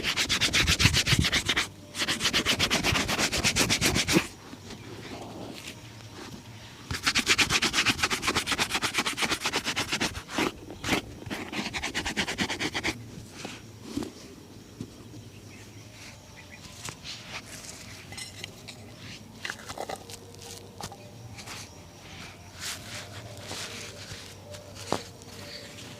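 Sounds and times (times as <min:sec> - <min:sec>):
shoe buffing rubbing strokes: 0:00.0 - 0:04.4, 0:06.9 - 0:13.6, 0:21.4 - 0:25.9.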